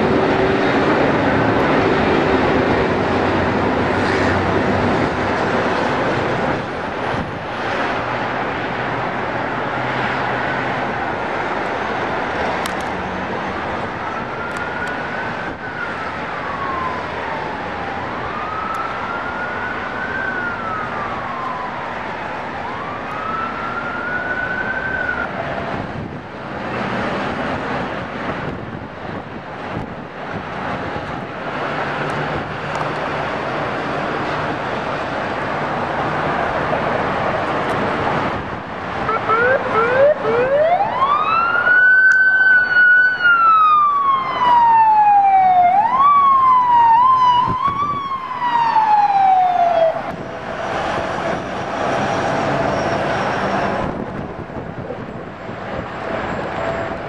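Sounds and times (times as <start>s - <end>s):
loud rushing noise: 0.0s - 14.2s, 46.2s - 57.0s
emergency siren wailing: 0.0s - 57.0s.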